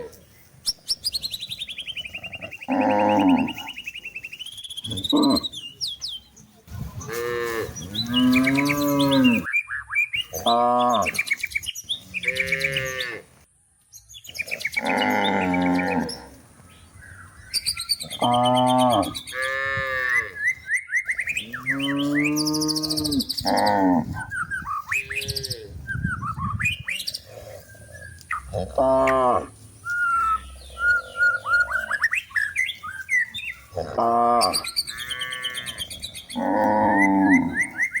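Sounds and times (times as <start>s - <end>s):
small birds chirping: 0.0s - 38.0s
cattle mooing: 2.5s - 3.8s, 7.1s - 9.5s, 14.8s - 16.2s, 21.6s - 24.2s, 28.4s - 29.5s, 33.7s - 37.7s.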